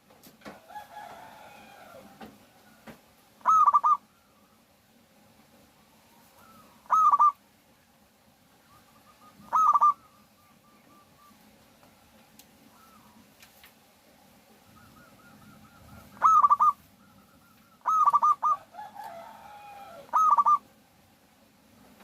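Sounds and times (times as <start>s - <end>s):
dove cooing: 0.7s - 4.6s, 5.8s - 7.4s, 8.6s - 13.4s, 14.4s - 20.7s.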